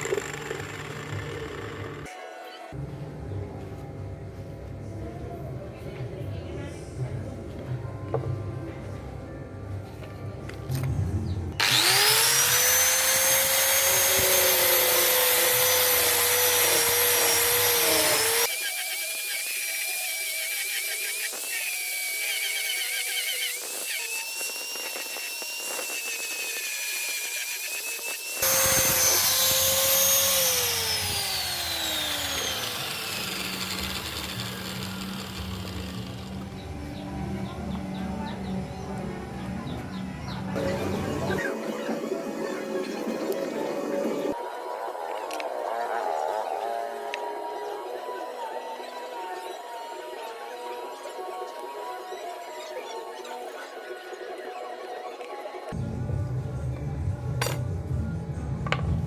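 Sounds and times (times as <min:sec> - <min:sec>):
electric power tool whining: 0:00.0 - 0:02.2, 0:11.6 - 0:36.7.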